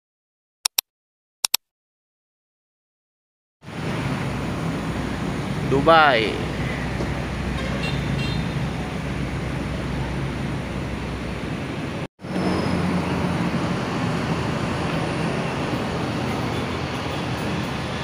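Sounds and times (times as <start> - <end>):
diesel bus engine idling: 3.7 - 18.0.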